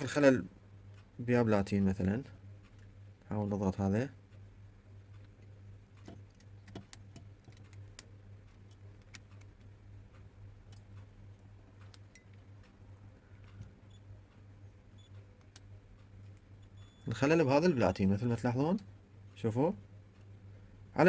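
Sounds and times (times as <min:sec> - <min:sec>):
steady low hum: 0:00.0 - 0:21.0
small switch clicks: 0:05.1 - 0:16.9.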